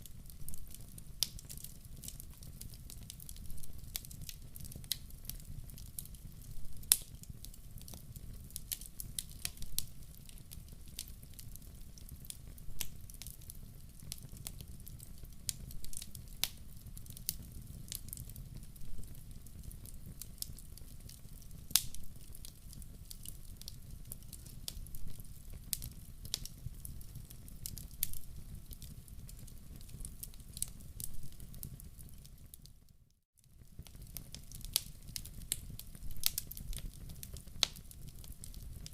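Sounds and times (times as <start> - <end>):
low rumble of burning: 0.0 - 32.8, 33.5 - 38.9
log fire crackling: 0.0 - 32.9, 33.5 - 38.9.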